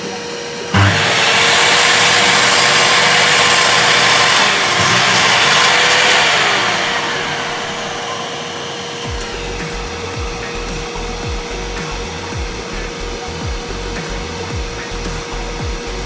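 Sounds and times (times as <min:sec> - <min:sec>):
mitre saw cutting: 0:00.2 - 0:16.0.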